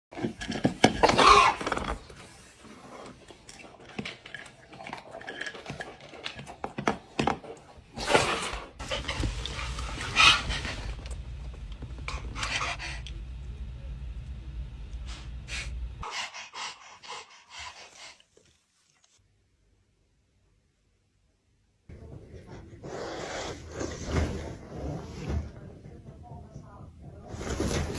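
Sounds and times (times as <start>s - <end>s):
low steady hum: 8.8s - 16.0s
breathy panting: 15.6s - 18.3s.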